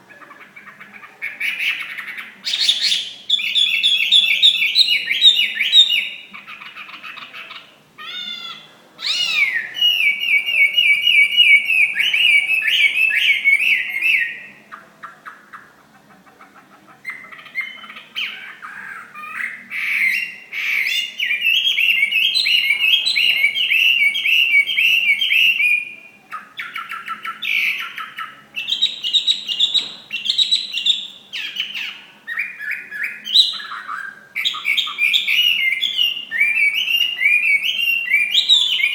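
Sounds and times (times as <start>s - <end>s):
songbird singing loudly: 0.1s - 14.6s, 17.0s - 38.9s.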